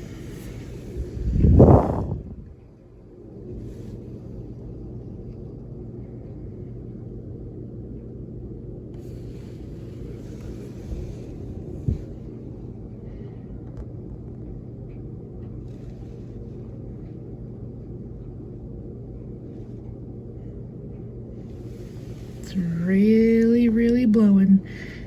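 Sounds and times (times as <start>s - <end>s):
blizzard wind rumbling and gusting: 0.0s - 14.4s.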